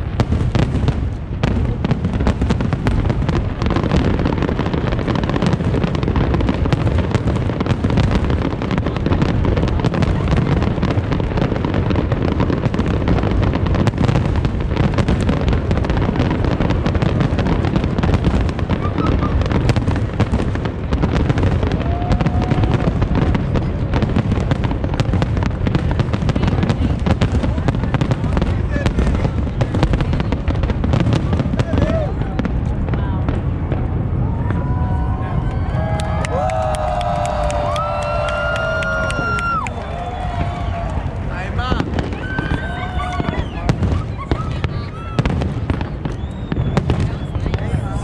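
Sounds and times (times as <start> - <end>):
fireworks booms and crackles: 0.0 - 48.0.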